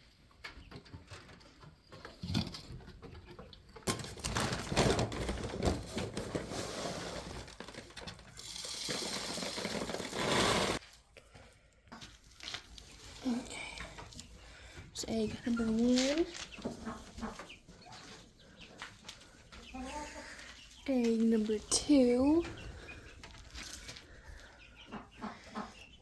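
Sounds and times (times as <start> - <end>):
rustling and clattering handling: 0.7 - 11.0.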